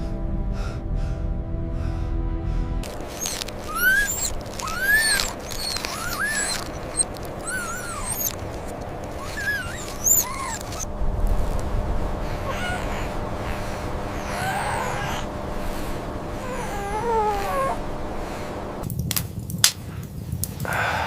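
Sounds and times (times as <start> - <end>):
puppies whimpering: 2.8 - 10.9, 12.2 - 18.6.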